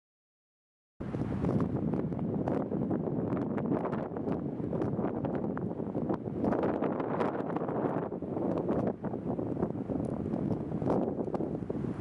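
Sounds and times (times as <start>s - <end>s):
wind buffeting microphone: 1.0s - 12.0s.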